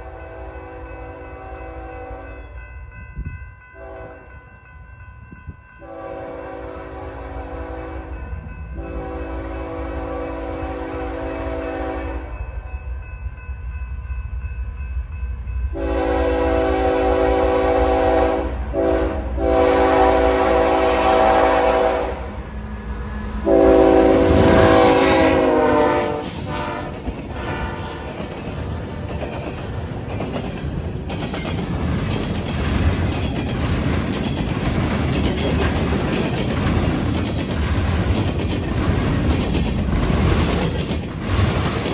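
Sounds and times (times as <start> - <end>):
train rumbling past: 0.0 - 41.9
locomotive air horn blasts: 3.8 - 4.3, 5.8 - 8.2, 8.8 - 12.4, 15.8 - 22.4, 23.4 - 28.1
wheels clicking over rail joints: 26.2 - 41.9.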